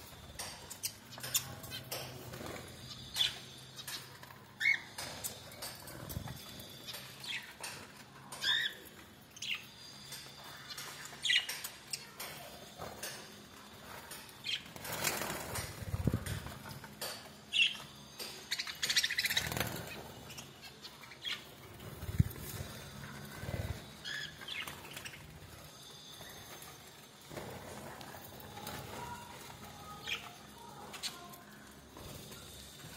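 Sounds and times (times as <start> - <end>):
birds chirping: 0.0 - 32.9.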